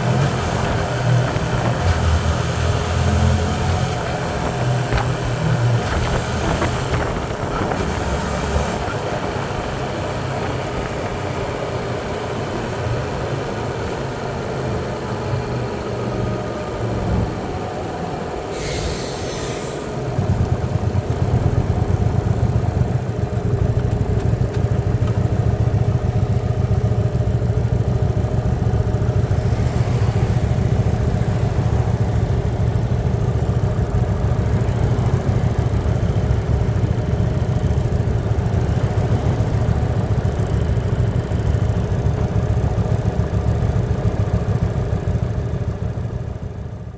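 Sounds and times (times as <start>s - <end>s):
motorcycle engine droning: 0.0s - 19.1s
brief hiss: 18.5s - 20.0s.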